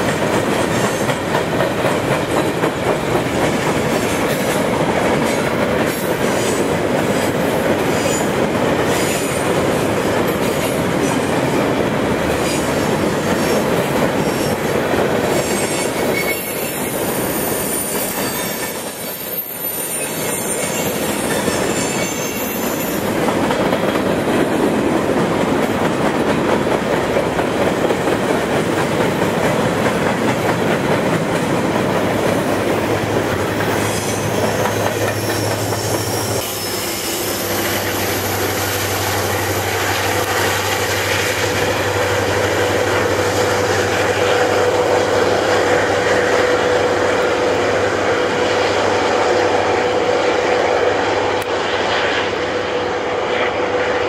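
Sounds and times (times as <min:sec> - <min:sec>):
train wheels clicking: 0:00.0 - 0:52.5
diesel locomotive engine drone: 0:00.0 - 0:54.0
wheel squeal: 0:15.3 - 0:23.2, 0:33.7 - 0:38.3.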